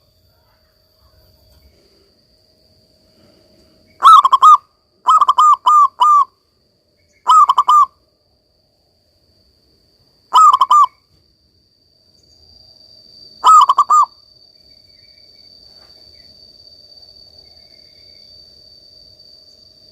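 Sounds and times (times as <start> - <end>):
dove cooing: 4.0 - 6.3, 7.3 - 7.9, 10.3 - 10.9, 13.4 - 14.1.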